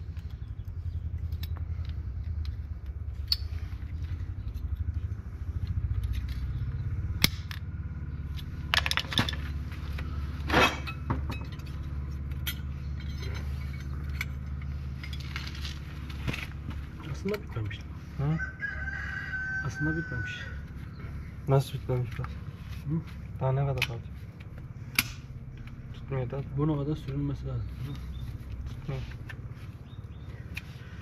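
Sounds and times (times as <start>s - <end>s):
machinery pulsing rumble: 0.0s - 31.0s
metal tools clinking and scraping: 8.3s - 17.8s.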